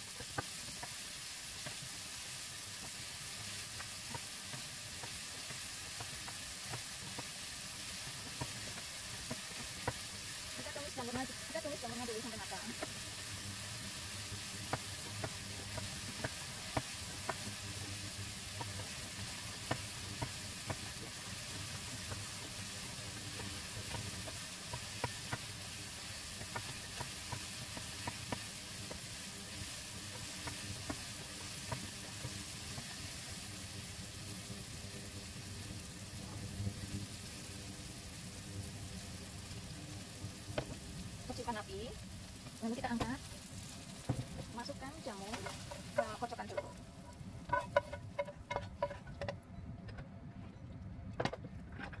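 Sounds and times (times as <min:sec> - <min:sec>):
food sizzling in oil: 0:00.0 - 0:49.3
spatula scraping and tapping pan: 0:03.8 - 0:07.3, 0:08.1 - 0:10.1, 0:14.6 - 0:17.5, 0:18.6 - 0:21.1, 0:23.3 - 0:25.5, 0:26.2 - 0:29.1, 0:30.0 - 0:33.2, 0:44.0 - 0:49.4.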